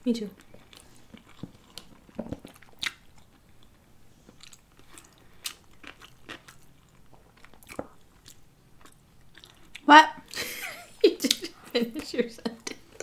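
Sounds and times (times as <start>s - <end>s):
chewing and mouth noises: 0.3s - 9.9s.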